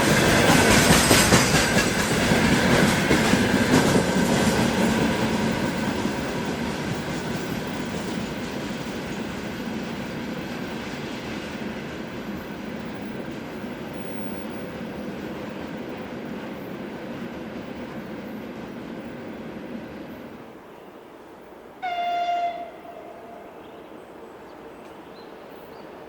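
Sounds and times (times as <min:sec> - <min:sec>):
freight train wagons clattering: 0:00.0 - 0:19.2.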